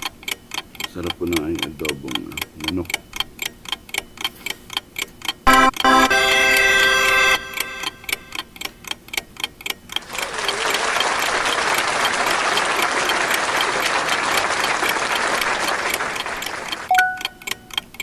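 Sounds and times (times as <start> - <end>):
sharp even ticking: 0.0 - 10.0, 16.9 - 18.0.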